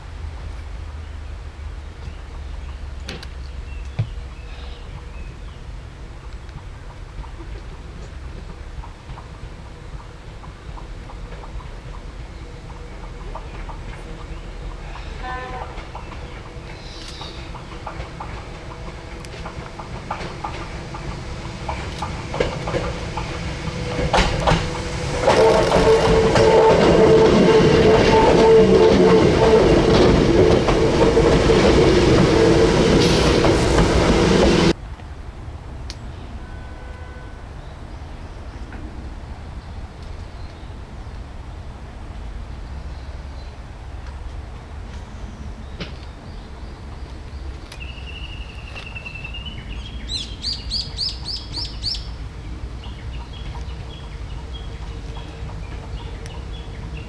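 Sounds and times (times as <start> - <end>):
electric train rumbling by: 0.0 - 35.7, 41.5 - 57.0
songbird singing: 12.3 - 34.7, 47.4 - 57.0
held tones: 18.6 - 27.2.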